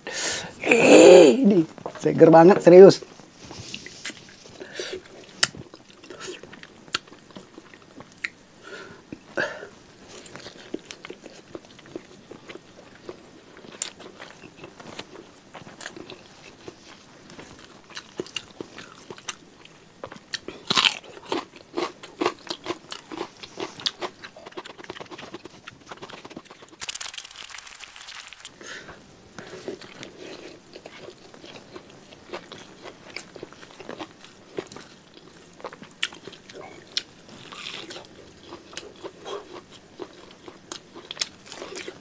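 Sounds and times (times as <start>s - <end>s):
food crunching: 26.8s - 28.5s
person chewing with wet clicks: 26.8s - 28.5s, 35.6s - 42.0s.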